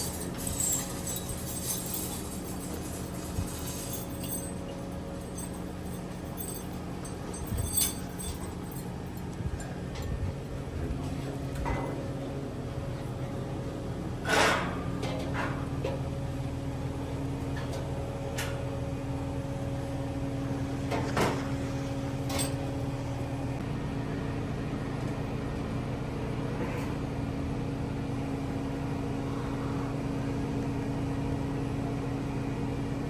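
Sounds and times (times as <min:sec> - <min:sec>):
machinery hum: 0:00.0 - 0:14.3.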